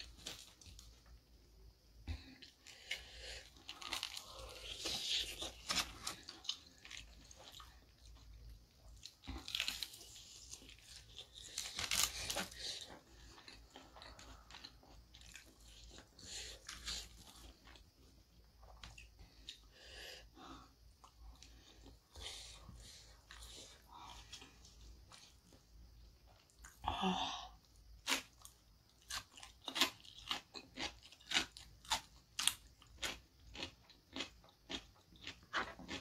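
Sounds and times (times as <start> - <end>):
soft chewing: 2.0 - 26.9, 27.6 - 36.0
crispy chicken crunching: 2.6 - 17.8, 28.0 - 36.0.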